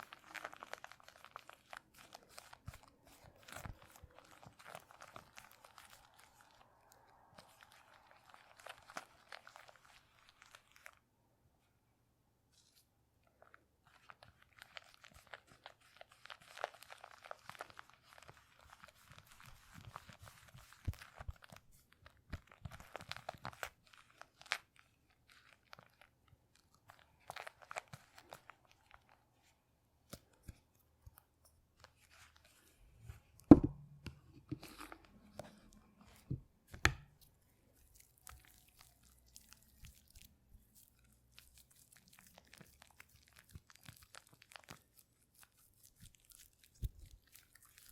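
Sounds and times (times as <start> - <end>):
crisp crackling and crunching: 0.0 - 11.1, 12.7 - 47.9.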